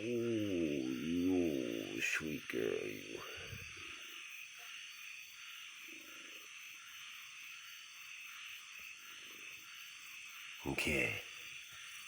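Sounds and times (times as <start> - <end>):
low frog calls: 0.0 - 4.8
frogs chorus: 0.0 - 12.0.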